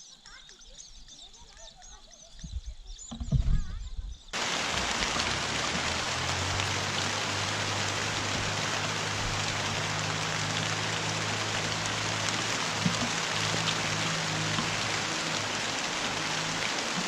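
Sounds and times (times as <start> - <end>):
rain-like hiss: 4.4 - 17.0.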